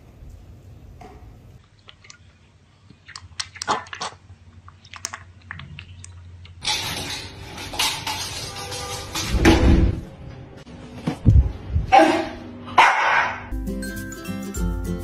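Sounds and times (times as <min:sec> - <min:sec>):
piglet slurping milk: 0:01.6 - 0:06.5.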